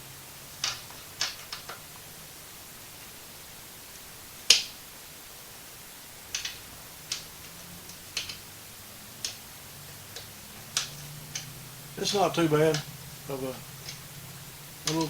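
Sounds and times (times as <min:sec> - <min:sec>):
tools clicking and tapping: 0:06.3 - 0:08.5, 0:10.1 - 0:13.0, 0:13.7 - 0:15.0.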